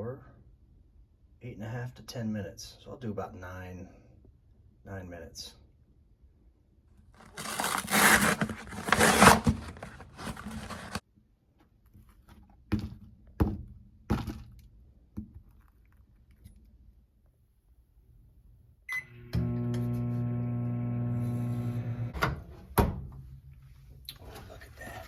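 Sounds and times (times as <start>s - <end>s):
cardboard and plastic film crackling: 7.2s - 11.0s.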